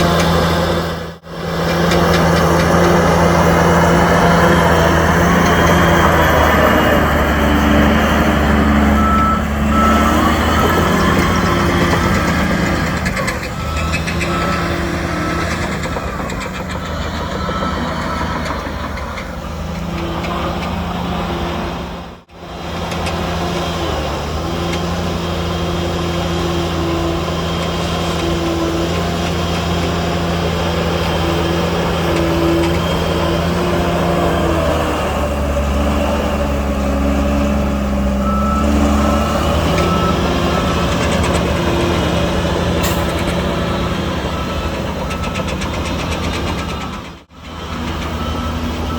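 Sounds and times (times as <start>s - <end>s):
diesel earthmoving machinery running: 0.0s - 48.9s
reversing alarm beeping: 3.1s - 19.1s, 36.7s - 48.9s.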